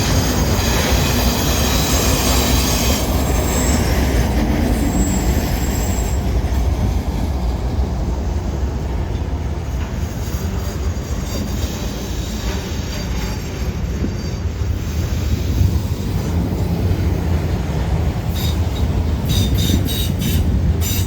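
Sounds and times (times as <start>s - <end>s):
freight train rolling past: 0.0s - 21.0s.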